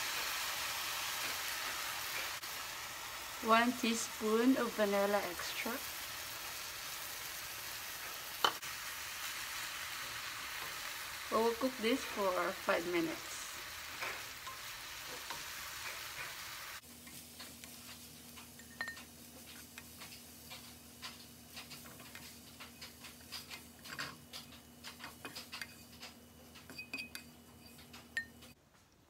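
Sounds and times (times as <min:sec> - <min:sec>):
filling sizzling in a skillet: 0:00.0 - 0:28.0
spatula scraping and tapping: 0:13.9 - 0:28.6.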